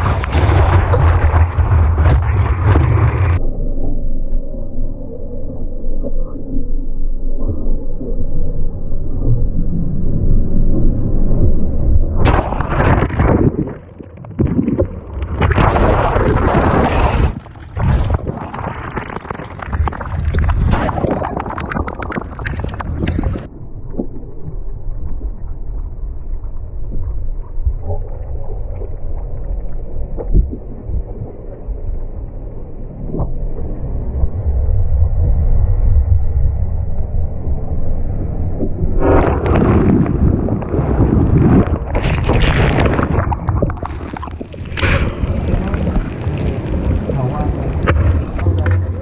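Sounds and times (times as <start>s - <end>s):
surf rumbling: 0.0s - 3.4s, 10.4s - 27.1s, 33.6s - 49.0s
churning water rushing: 39.0s - 49.0s.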